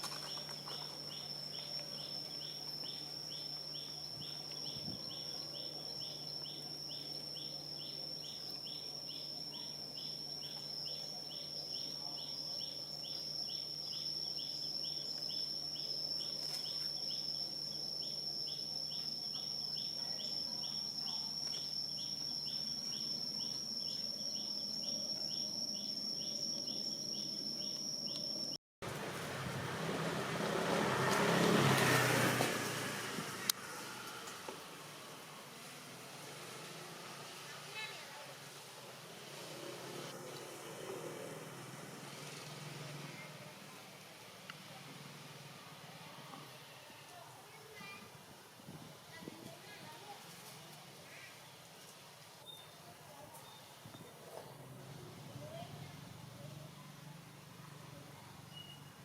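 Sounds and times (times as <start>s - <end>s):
insects trilling: 0.0s - 28.6s.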